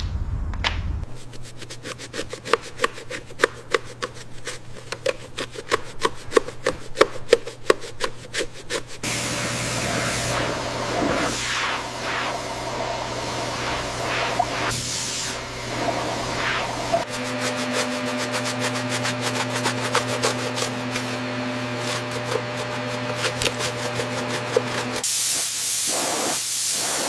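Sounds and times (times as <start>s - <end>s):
hand sanding strokes: 1.1s - 9.1s, 17.0s - 26.2s
steady hiss: 25.0s - 27.0s.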